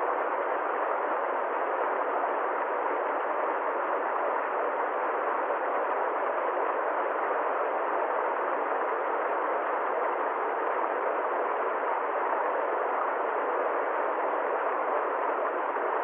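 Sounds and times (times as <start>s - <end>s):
muffled rushing hiss: 0.0s - 16.0s.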